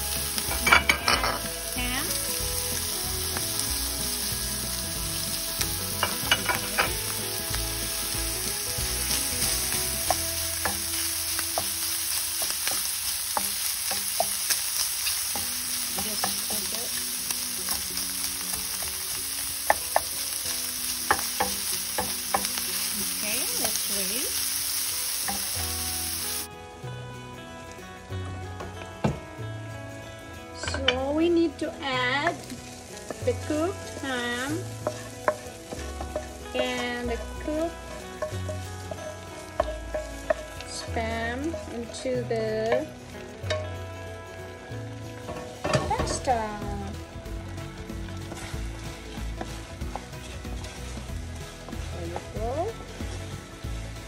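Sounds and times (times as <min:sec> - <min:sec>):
ham sizzling in a frying pan: 0:00.0 - 0:54.0
wooden spatula scraping a pan: 0:32.2 - 0:43.0, 0:48.0 - 0:54.0.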